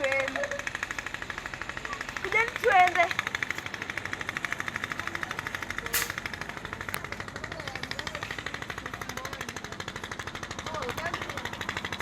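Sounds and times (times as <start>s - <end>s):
fast pulsing rattle: 0.0s - 12.0s
sharp click: 5.9s - 6.3s.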